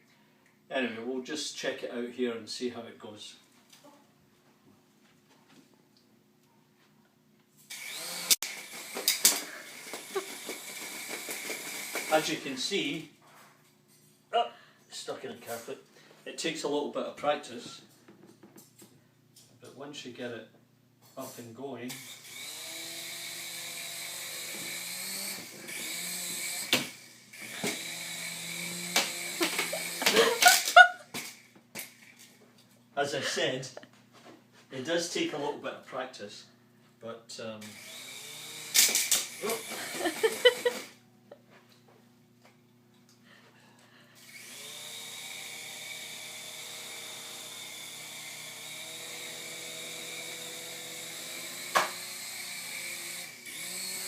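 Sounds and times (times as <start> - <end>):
toy helicopter rotors whining: 7.7 - 12.5, 21.9 - 32.3, 37.6 - 41.0, 44.2 - 54.0.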